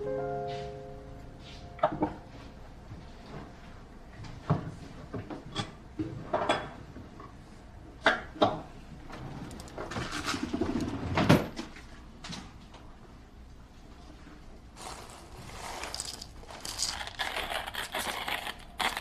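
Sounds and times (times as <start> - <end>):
objects clicking and knocking: 14.8 - 19.0
rustling: 14.8 - 19.0.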